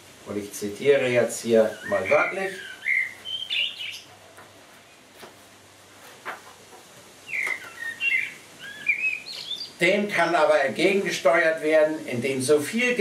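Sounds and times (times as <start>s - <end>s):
small bird chirping: 1.6s - 5.0s, 7.2s - 9.8s.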